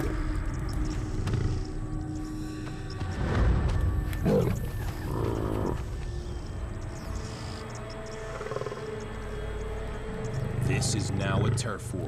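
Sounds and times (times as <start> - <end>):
lion growling: 4.2 - 6.0, 8.2 - 9.1, 10.4 - 12.0.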